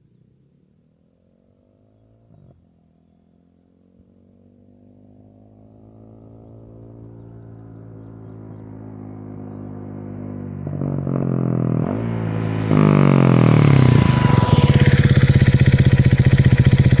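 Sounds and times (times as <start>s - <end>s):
motorcycle engine: 7.4s - 17.0s.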